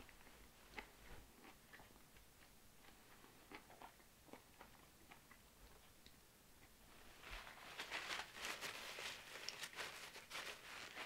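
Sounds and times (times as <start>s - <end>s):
person chewing: 0.0s - 6.0s.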